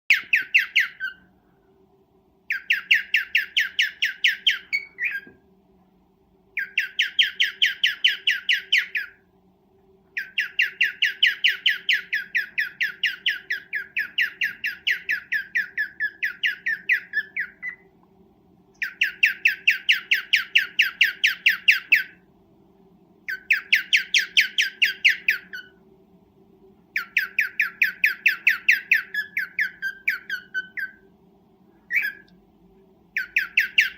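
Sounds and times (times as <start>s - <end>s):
cockatiel chirping: 0.1s - 1.3s, 2.5s - 5.4s, 6.5s - 9.2s, 10.2s - 17.9s, 18.8s - 22.2s, 23.3s - 25.8s, 26.9s - 31.0s, 31.9s - 32.4s, 33.1s - 33.9s
faint steady hum: 0.1s - 33.9s.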